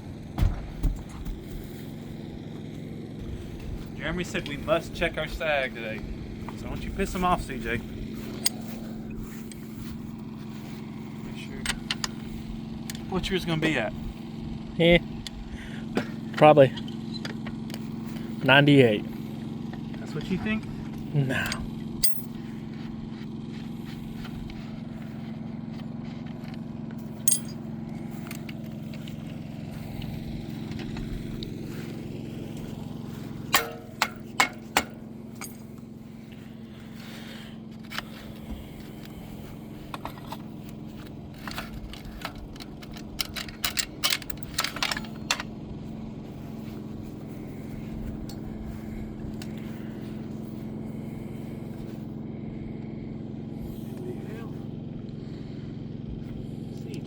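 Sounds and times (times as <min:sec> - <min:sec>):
low mechanical hum: 0:00.0 - 0:57.0
sharp clicks and knocks: 0:33.5 - 0:35.6, 0:41.4 - 0:45.5.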